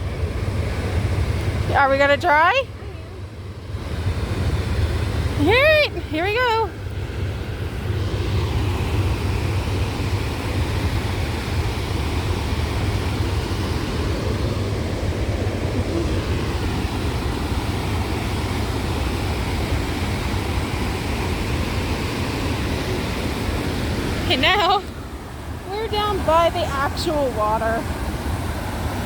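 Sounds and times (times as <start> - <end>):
waterfall and river rapids rushing: 6.9 - 29.0.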